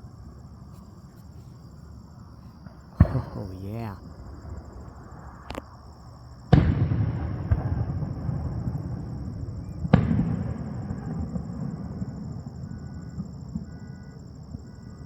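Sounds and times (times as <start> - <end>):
fireworks bursting: 3.0 - 4.0
sharp crack: 3.0 - 4.0.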